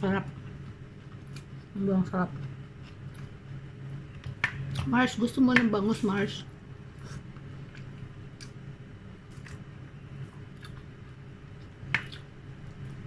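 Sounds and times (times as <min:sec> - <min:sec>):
steady low hum: 0:00.0 - 0:13.0
chewing clicks and wet smacks: 0:10.4 - 0:12.9.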